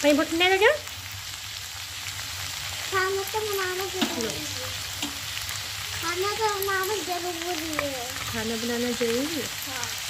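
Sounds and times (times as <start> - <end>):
vegetables sizzling in oil: 0.0 - 10.0
high-pitched voice: 6.0 - 8.2.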